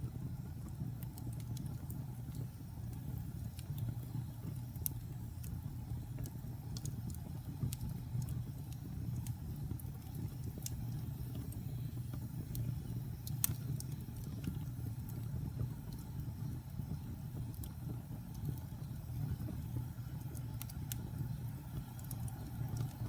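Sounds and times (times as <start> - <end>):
fire flames rumbling: 0.0 - 23.0
wood crackling and popping: 0.0 - 23.0.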